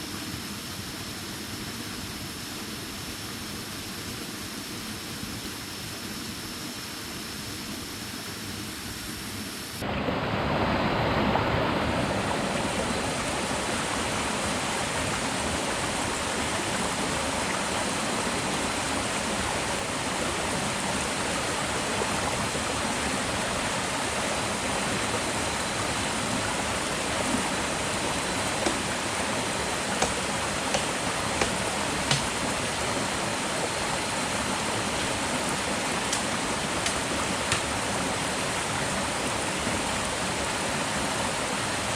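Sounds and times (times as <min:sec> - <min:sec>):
rushing water: 0:09.6 - 0:41.9.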